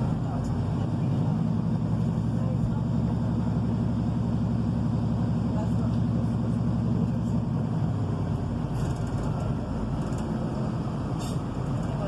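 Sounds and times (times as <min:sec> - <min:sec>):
diesel engine rumble: 0:00.0 - 0:12.0.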